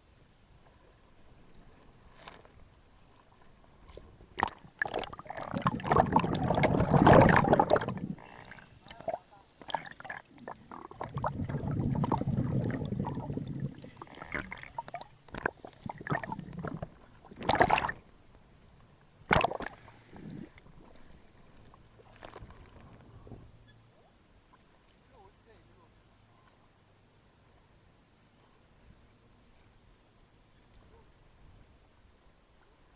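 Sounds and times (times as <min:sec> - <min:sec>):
water sloshing and splashing: 0:01.3 - 0:18.1, 0:19.3 - 0:23.5.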